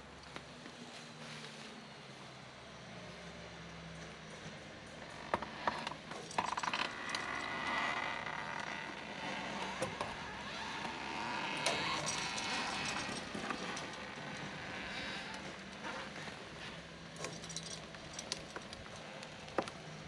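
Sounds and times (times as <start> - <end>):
metal rigging clinking and rattling: 5.0 - 19.2.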